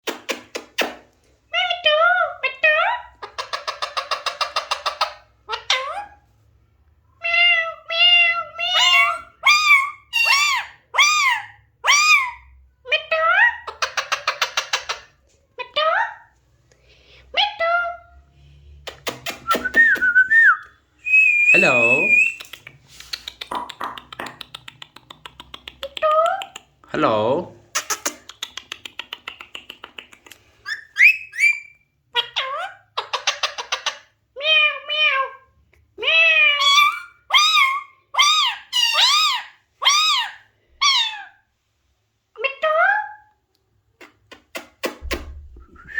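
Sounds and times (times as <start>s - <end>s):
parakeet clicking chatter: 22.3s - 26.8s
parakeet calling: 30.6s - 34.0s
parakeet whistled notes: 30.7s - 31.8s.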